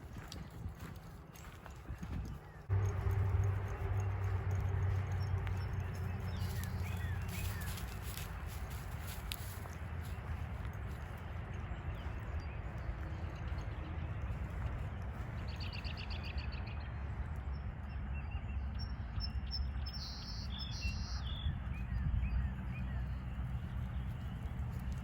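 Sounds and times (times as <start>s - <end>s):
low rumble: 2.0s - 18.6s.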